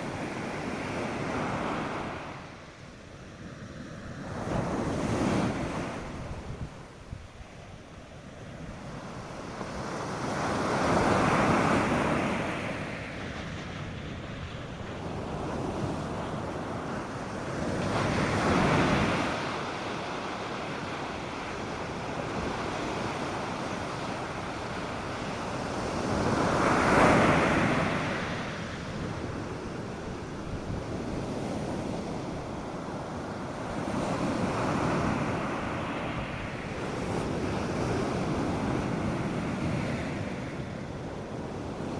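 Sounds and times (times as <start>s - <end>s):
wind: 0.0s - 41.9s
wind noise on microphone: 3.4s - 41.9s
surf breaking on beach: 8.6s - 41.9s.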